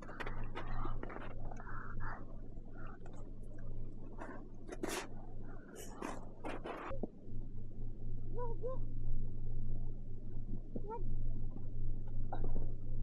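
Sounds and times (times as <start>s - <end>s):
steady low hum: 0.0s - 13.0s
scraping or rustling: 4.1s - 7.0s.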